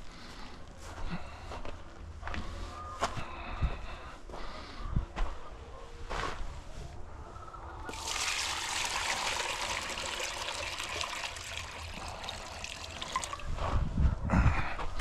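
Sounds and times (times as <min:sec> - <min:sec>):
water pouring into container: 0:07.8 - 0:13.6.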